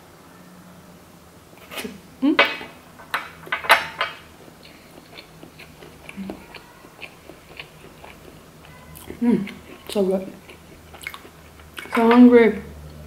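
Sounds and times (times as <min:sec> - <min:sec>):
person chewing food: 0:04.3 - 0:12.0.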